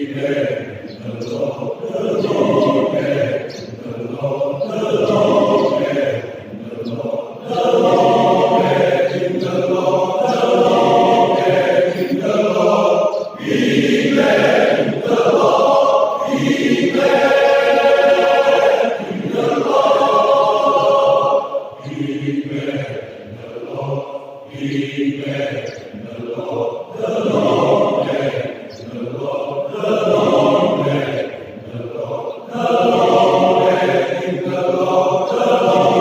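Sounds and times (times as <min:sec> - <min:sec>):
men's choir singing a hymn: 0:00.0 - 0:36.0.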